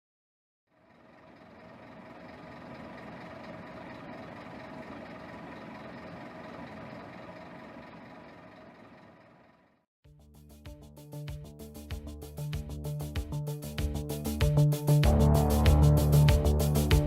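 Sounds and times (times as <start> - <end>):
bus diesel engine running: 0.8 - 9.8.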